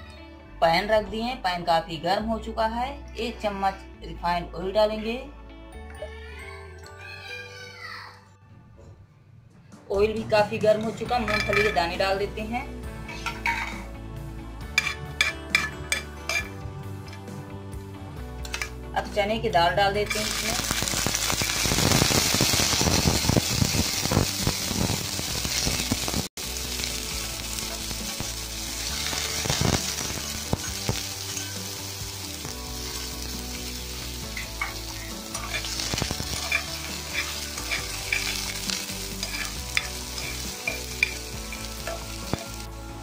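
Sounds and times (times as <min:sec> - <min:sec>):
lentils sizzling in hot oil: 0:20.0 - 0:43.0
spatula scraping a pan: 0:34.3 - 0:42.3.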